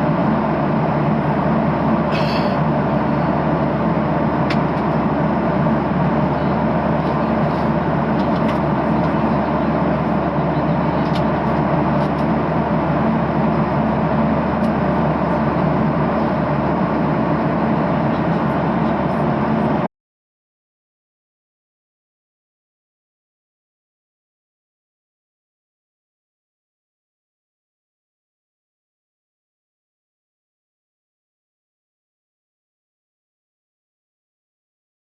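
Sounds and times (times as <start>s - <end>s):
jet engine drone: 0.0s - 19.9s.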